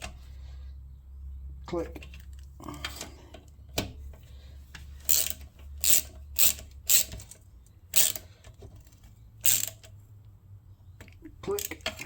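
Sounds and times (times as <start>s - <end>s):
ratchet wrench clicking: 5.1s - 8.3s, 9.4s - 9.9s.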